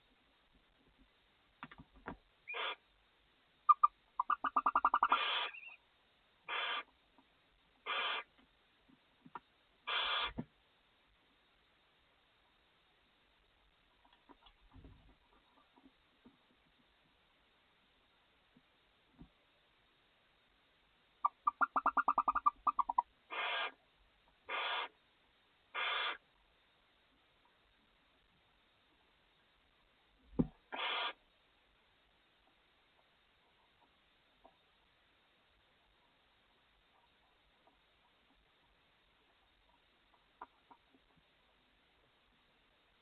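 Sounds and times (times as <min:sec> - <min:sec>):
owl nestlings hissing: 0:02.4 - 0:02.8, 0:03.7 - 0:05.8, 0:06.5 - 0:06.9, 0:07.8 - 0:08.3, 0:09.9 - 0:10.4, 0:21.2 - 0:23.8, 0:24.5 - 0:25.0, 0:25.7 - 0:26.2, 0:30.7 - 0:31.2.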